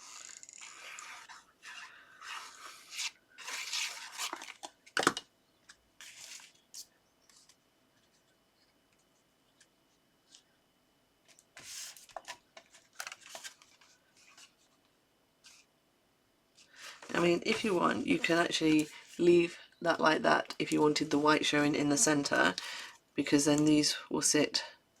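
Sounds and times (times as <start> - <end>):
paper rustling and scraping: 0.0 - 4.8, 6.0 - 8.3, 11.6 - 14.7, 16.6 - 19.5.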